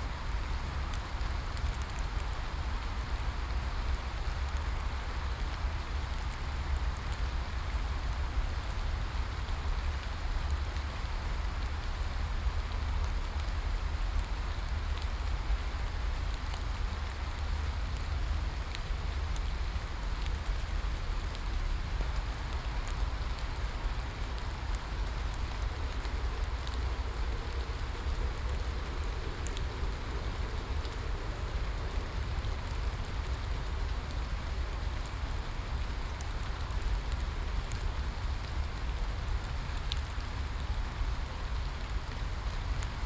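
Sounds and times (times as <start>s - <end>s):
faint rain drop ticks: 0.1s - 43.0s
rain hissing: 22.2s - 43.0s.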